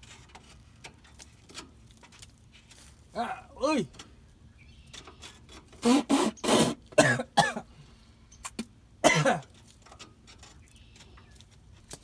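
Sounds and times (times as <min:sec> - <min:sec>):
man clearing his throat: 0:07.0 - 0:07.7, 0:09.0 - 0:09.5
man coughing: 0:07.0 - 0:07.7, 0:09.0 - 0:09.4.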